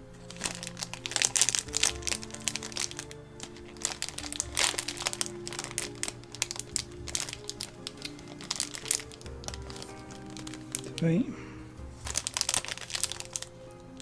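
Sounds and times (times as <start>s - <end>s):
background music with held tones: 0.0s - 14.0s
plastic bag crinkling: 0.1s - 14.0s.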